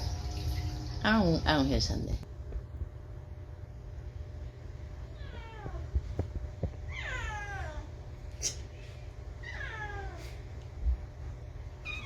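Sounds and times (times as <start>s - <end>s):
cat meowing: 5.1s - 5.9s, 6.9s - 7.9s, 9.4s - 10.4s.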